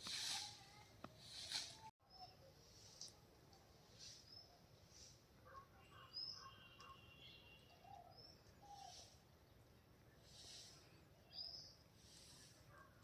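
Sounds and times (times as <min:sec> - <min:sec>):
faint bird chirps: 0:02.0 - 0:02.7, 0:03.9 - 0:13.0.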